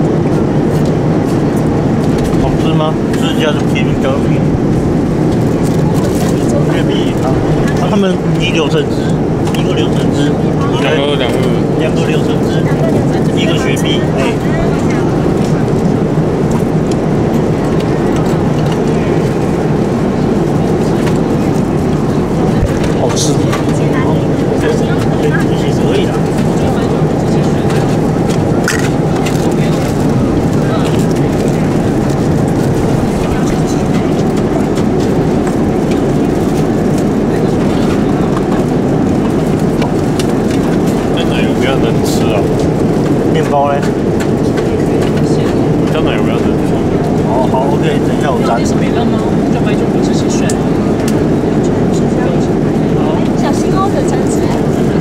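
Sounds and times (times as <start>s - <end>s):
airliner cabin engine rush: 0.0s - 55.0s.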